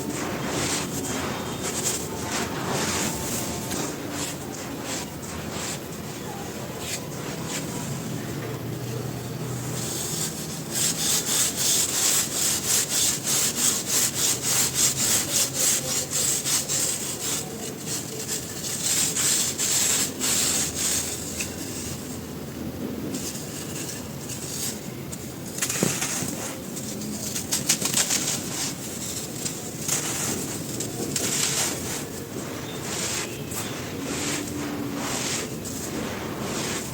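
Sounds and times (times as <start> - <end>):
gritty crunching by hand: 25.5 - 36.9.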